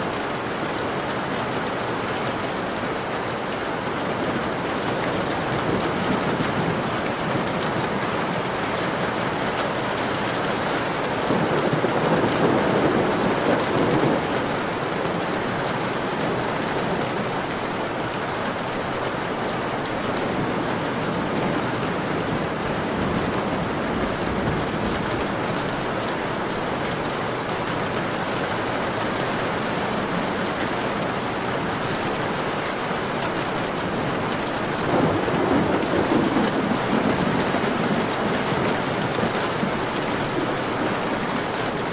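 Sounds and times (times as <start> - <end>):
rain pattering on window: 0.1 - 41.9
thunder rolling: 10.9 - 15.4, 19.9 - 26.6, 33.8 - 41.6.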